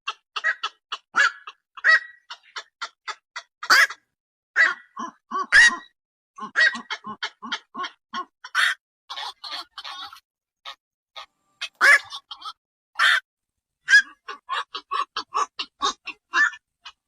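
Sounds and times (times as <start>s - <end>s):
herons calling harshly: 0.1s - 13.2s, 13.8s - 17.0s
loud squawks: 0.1s - 13.2s.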